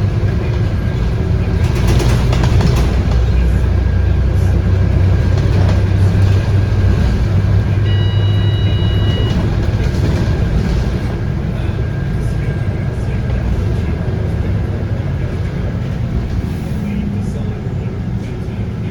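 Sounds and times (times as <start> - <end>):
bus engine drone: 0.0 - 18.9
high tone: 7.6 - 13.3.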